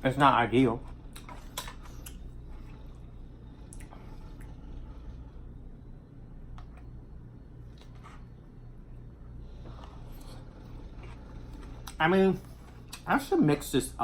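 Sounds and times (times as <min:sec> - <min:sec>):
low steady hum: 0:00.0 - 0:14.0
person chewing and smacking: 0:00.8 - 0:03.0, 0:03.7 - 0:04.5, 0:10.1 - 0:13.1.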